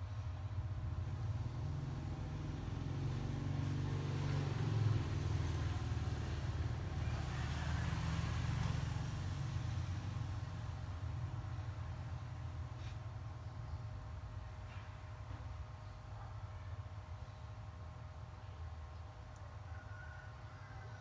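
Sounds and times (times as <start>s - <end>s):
vehicle engine rumble: 0.0s - 15.6s.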